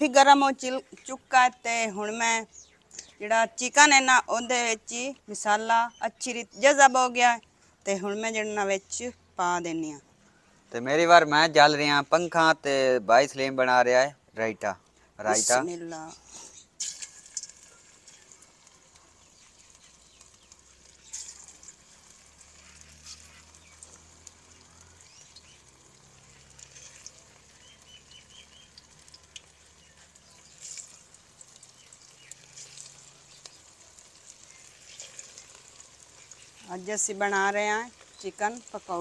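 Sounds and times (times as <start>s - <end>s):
chicken frying in oil: 16.3s - 39.0s.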